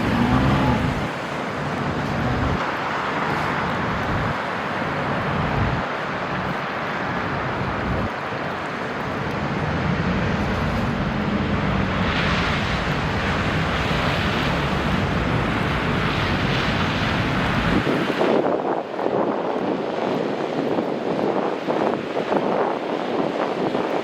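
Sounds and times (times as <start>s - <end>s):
traffic rumbling: 0.0s - 18.3s
vehicles passing: 0.0s - 18.3s
wind on microphone: 0.0s - 24.0s.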